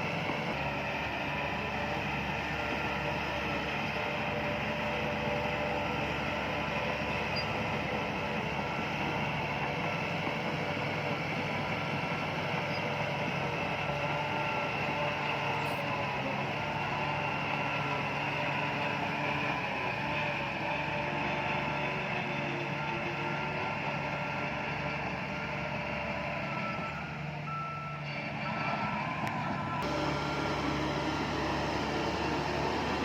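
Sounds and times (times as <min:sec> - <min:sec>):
bulldozer diesel engine running: 0:00.0 - 0:33.0.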